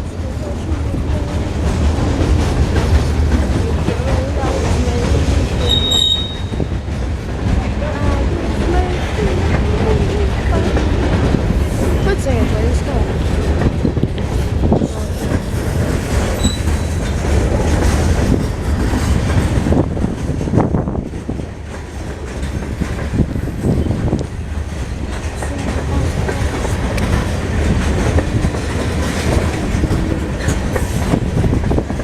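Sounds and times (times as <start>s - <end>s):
freight train rumbling past: 0.0s - 32.0s
wheels clacking over rail joints: 0.0s - 32.0s.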